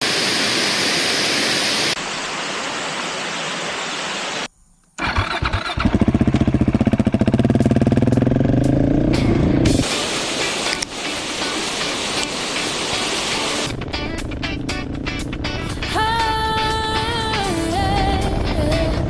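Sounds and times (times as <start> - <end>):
motorcycle engine cranking and idling: 4.9 - 9.4, 13.7 - 16.6
steady hiss: 9.8 - 13.7.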